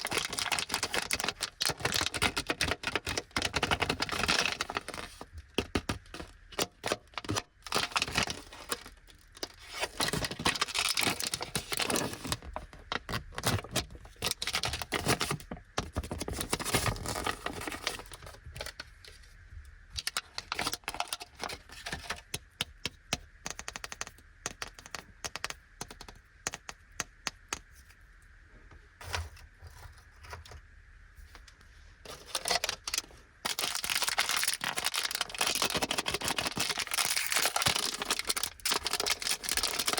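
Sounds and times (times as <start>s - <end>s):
plastic wrapper crinkling: 0.0s - 18.8s, 32.1s - 39.9s.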